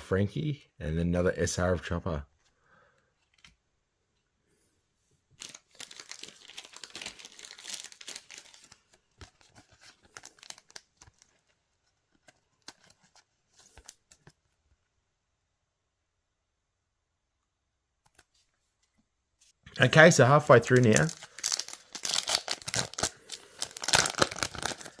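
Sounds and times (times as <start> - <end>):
cards handled crackling and clicking: 3.2 - 3.6, 5.4 - 14.4, 20.7 - 25.0
wrapper tearing and crinkling: 5.4 - 11.4, 20.6 - 25.0.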